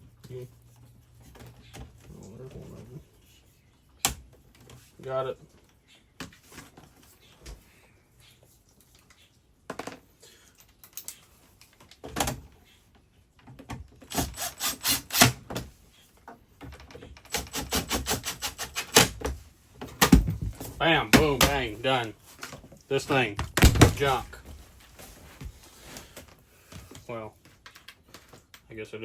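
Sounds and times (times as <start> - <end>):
knocks and handling noises: 0.0 - 3.0, 8.8 - 14.1, 18.9 - 28.6.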